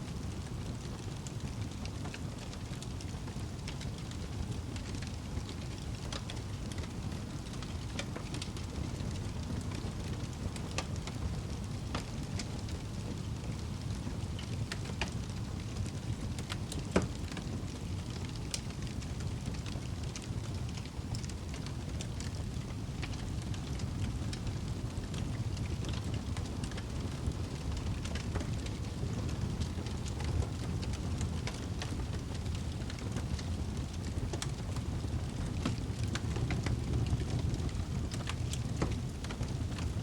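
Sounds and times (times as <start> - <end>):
fire crackles and pops: 0.0 - 40.0
fire flames rumbling: 0.0 - 40.0.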